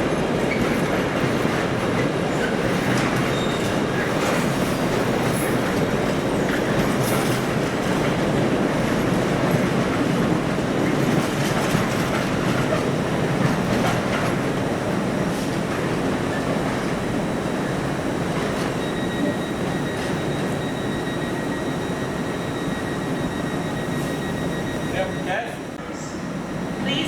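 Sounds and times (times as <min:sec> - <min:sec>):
train wheels on rails: 0:00.0 - 0:27.0.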